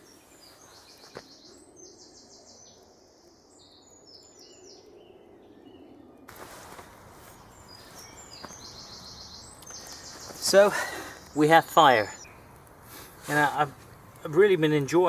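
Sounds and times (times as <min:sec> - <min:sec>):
songbird singing: 0:00.0 - 0:15.0
steady hiss: 0:06.3 - 0:15.0.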